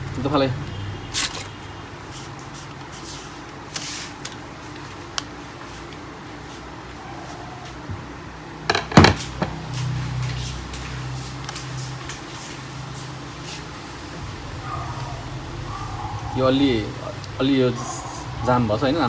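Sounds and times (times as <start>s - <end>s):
steady low hum: 8.0s - 19.0s.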